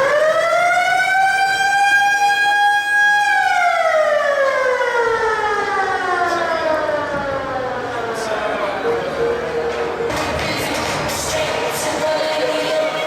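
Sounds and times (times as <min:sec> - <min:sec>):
siren winding down: 0:00.0 - 0:10.1.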